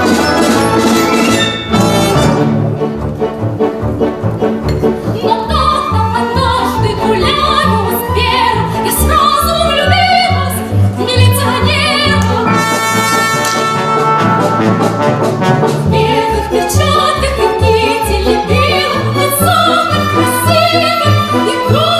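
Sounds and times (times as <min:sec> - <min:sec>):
orchestral accompaniment with brass: 0:00.0 - 0:21.9
woman singing with vibrato: 0:05.2 - 0:13.0, 0:15.9 - 0:21.9.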